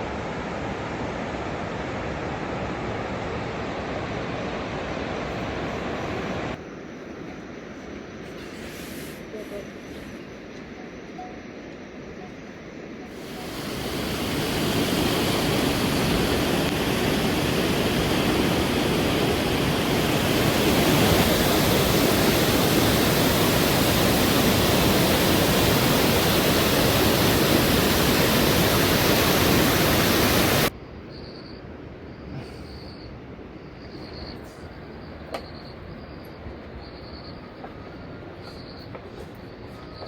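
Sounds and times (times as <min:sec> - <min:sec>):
rush of falling water: 0:13.2 - 0:30.7.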